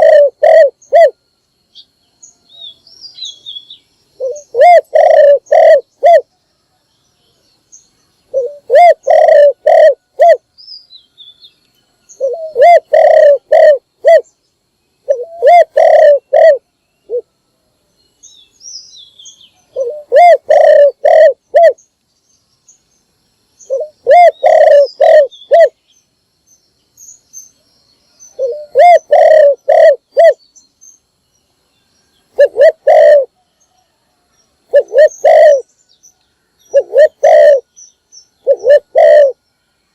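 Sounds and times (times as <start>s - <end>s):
dove cooing: 0.0s - 1.2s, 4.2s - 6.3s, 8.3s - 10.4s, 12.2s - 14.3s, 15.0s - 17.2s, 19.7s - 21.8s, 23.7s - 25.8s, 28.4s - 30.4s, 32.3s - 34.0s, 34.7s - 35.7s, 36.7s - 37.7s, 38.4s - 39.4s
small birds chirping: 17.9s - 39.9s.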